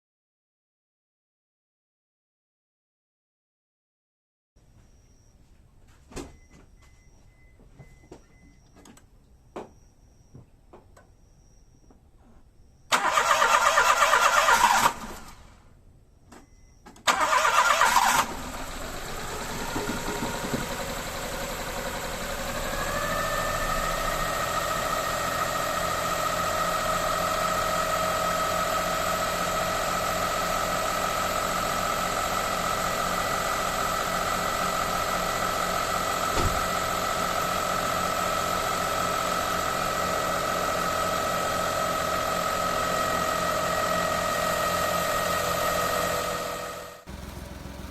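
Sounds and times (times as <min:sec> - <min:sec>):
engine starter cranking: 0:12.9 - 0:15.5, 0:17.0 - 0:23.5
engine idling: 0:17.1 - 0:47.9.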